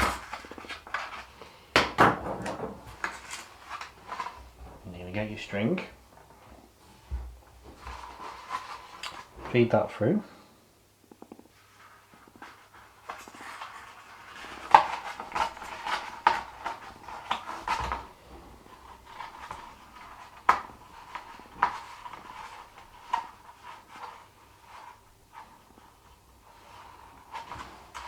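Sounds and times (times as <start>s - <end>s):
card rustling: 0.0s - 5.4s.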